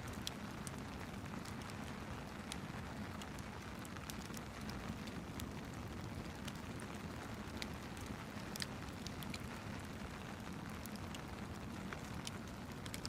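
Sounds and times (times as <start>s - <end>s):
fireplace crackling: 0.0s - 13.0s
rain: 0.0s - 13.0s.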